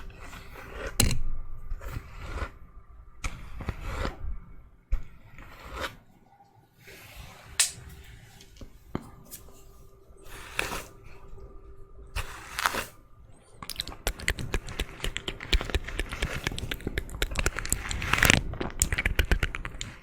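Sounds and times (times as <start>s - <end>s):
crackling and scratching: 0.0s - 6.3s, 12.2s - 20.0s.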